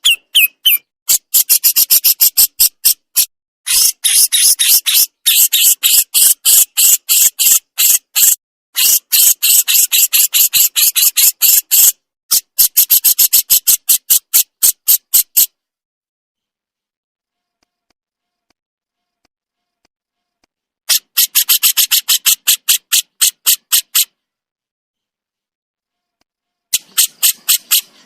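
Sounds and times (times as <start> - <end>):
bird giving harsh rasping calls: 0.0 - 15.5, 20.9 - 24.2, 26.8 - 28.0.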